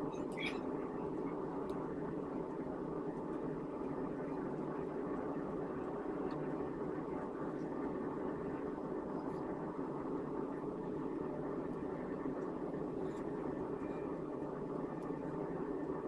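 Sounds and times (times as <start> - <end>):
steady rushing noise: 0.0 - 16.0
faint ticks: 14.9 - 15.4.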